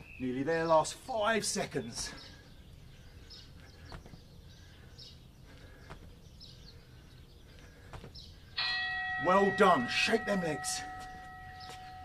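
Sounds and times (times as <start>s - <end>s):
small bird chirping: 0.0s - 8.7s.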